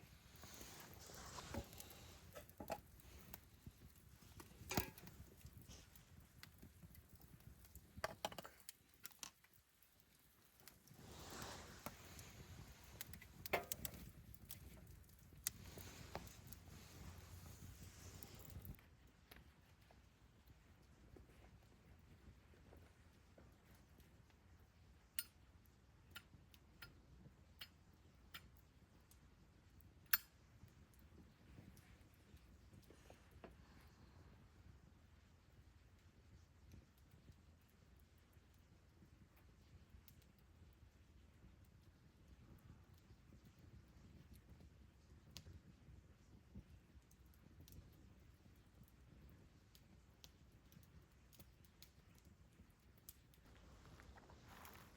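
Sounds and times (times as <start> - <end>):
wood fire crackling: 0.0 - 54.9
sharp pops and clicks: 0.4 - 9.6, 10.6 - 19.4.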